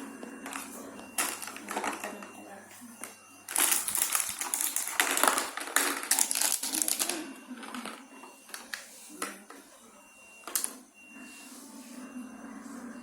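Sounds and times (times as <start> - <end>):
packaging crinkling: 1.2 - 2.2, 3.5 - 8.8.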